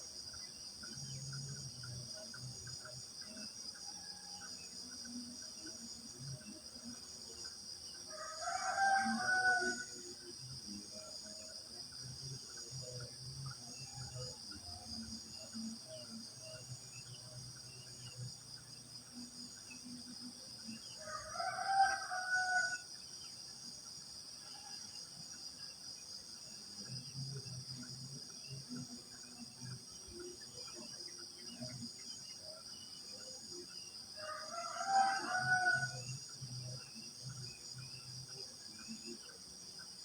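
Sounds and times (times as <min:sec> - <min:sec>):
crickets chirring: 0:00.0 - 0:40.0
rooster crowing: 0:08.1 - 0:09.9, 0:21.0 - 0:22.8, 0:34.2 - 0:36.0.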